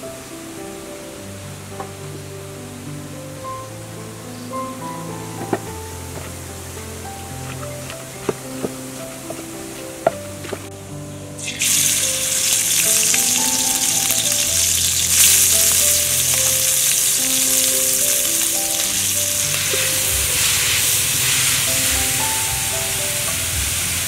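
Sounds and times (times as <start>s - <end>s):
curry paste sizzling in oil: 11.4s - 24.0s.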